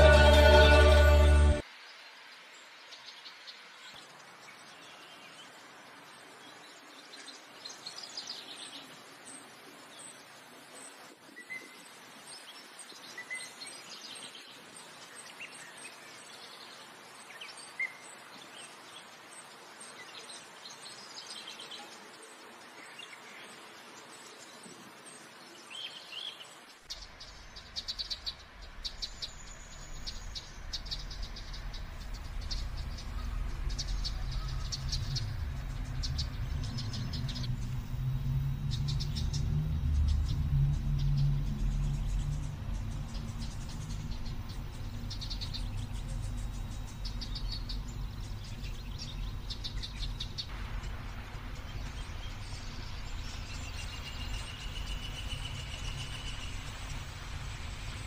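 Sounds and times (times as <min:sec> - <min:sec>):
birds chirping: 0:00.0 - 0:01.6, 0:12.5 - 0:58.0
low rumble: 0:27.2 - 0:58.0.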